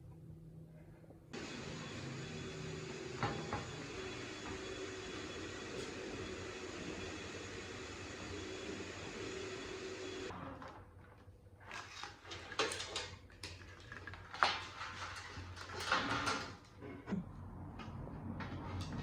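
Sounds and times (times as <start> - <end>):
steady machine noise: 1.4 - 10.3.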